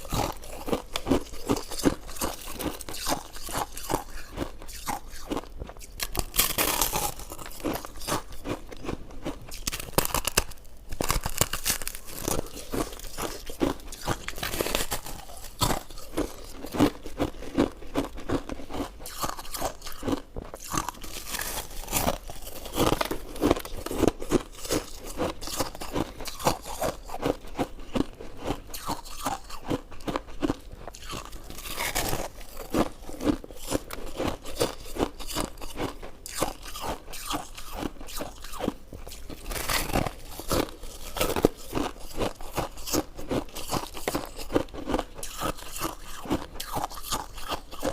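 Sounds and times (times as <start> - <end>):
person chewing crunchy food: 0.0 - 47.9.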